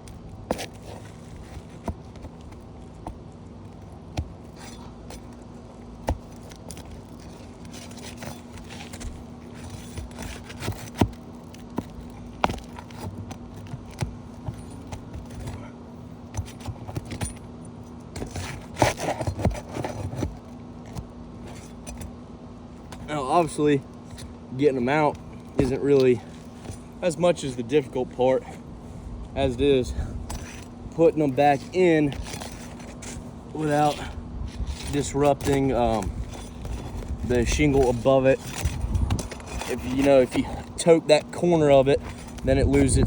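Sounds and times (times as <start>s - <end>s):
roof shingles being pried up: 0.0s - 43.0s.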